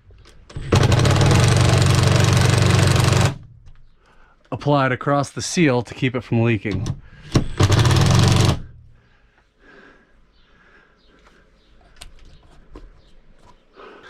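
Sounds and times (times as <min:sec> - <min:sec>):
power driver rattling: 0:00.1 - 0:04.0, 0:06.6 - 0:09.0
light clicks and handling: 0:11.2 - 0:13.7.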